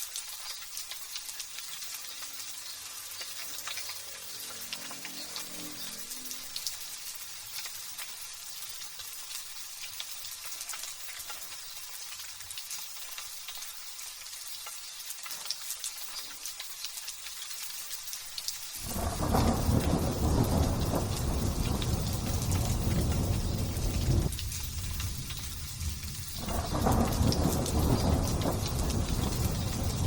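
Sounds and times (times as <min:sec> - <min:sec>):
light rain hissing: 0:00.0 - 0:30.0
thunder rumble: 0:18.8 - 0:30.0.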